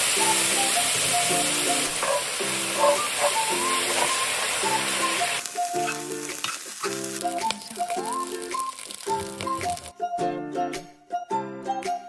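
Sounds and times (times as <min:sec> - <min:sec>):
food sizzling in a wok: 0:00.0 - 0:09.9
light background music: 0:00.2 - 0:12.0
stirring clicks: 0:05.4 - 0:09.9.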